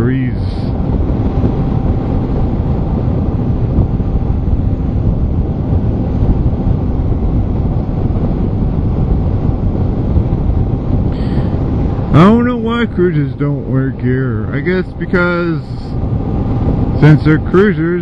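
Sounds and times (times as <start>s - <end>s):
wind rush on microphone: 0.0s - 18.0s.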